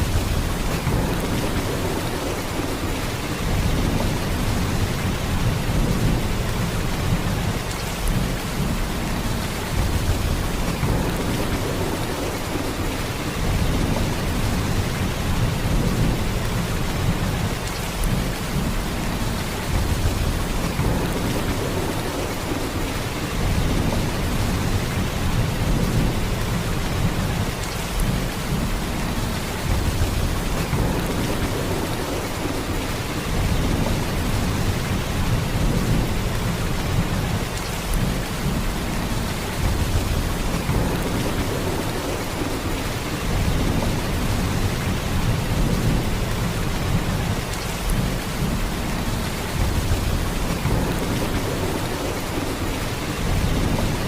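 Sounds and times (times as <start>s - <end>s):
heavy rain downpour: 0.0s - 54.0s.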